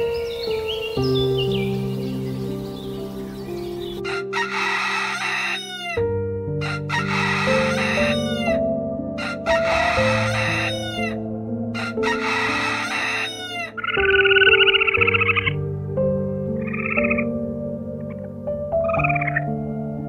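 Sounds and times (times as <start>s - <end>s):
soft background music: 0.0s - 20.0s
bird screeching calls: 2.9s - 6.0s, 6.7s - 8.6s, 9.2s - 11.2s, 11.8s - 15.6s
frog trilling croak: 9.2s - 11.2s, 11.8s - 15.6s, 16.6s - 17.3s.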